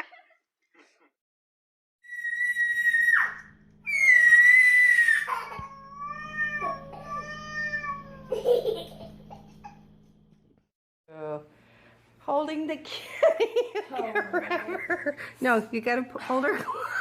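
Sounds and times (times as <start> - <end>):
cat yowling: 5.7 - 8.3.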